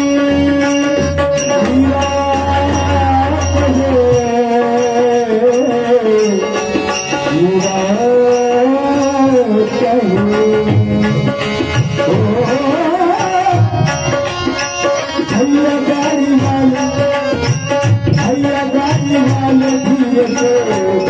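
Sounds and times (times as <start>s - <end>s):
person singing: 0.0s - 14.0s.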